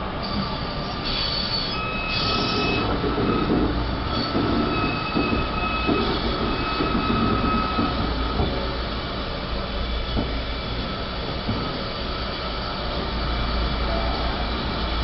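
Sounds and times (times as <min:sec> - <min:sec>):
rumble of train wheels: 0:00.0 - 0:15.0
high wheel squeal: 0:00.2 - 0:08.4.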